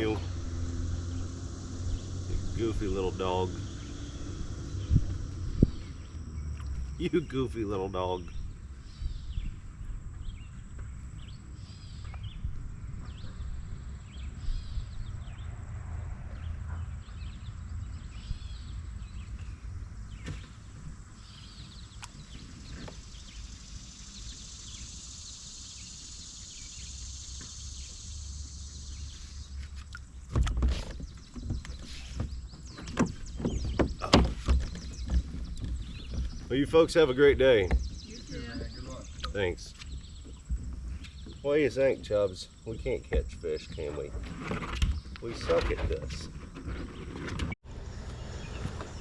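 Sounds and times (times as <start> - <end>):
low rumbling outdoor noise: 0.0 - 49.0
sharp knocks and thumps: 20.2 - 21.0, 29.6 - 38.2.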